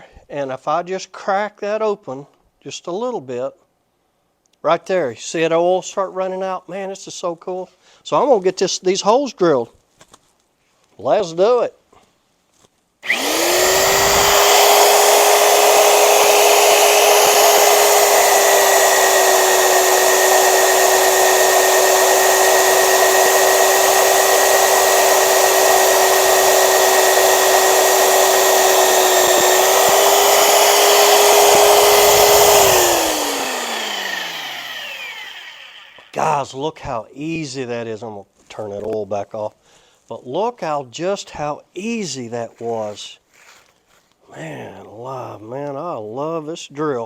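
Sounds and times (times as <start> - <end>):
drill motor whining: 13.0 - 36.4.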